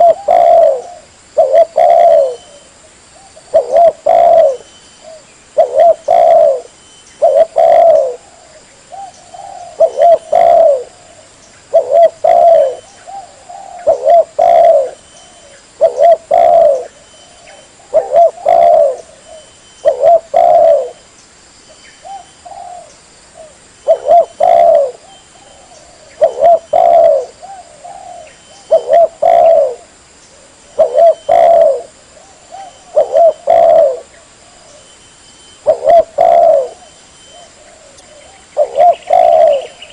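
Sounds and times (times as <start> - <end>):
dove cooing: 0.0 - 21.0, 22.0 - 35.0, 35.6 - 39.9.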